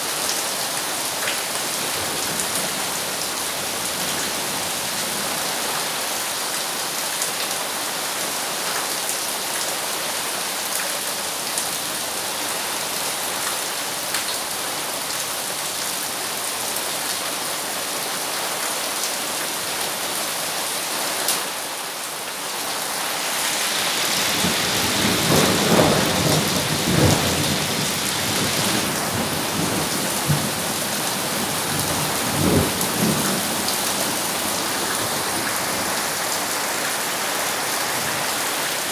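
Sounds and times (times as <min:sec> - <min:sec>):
rain on ground and puddles: 0:00.0 - 0:38.9
thunder rumbling: 0:24.1 - 0:34.3.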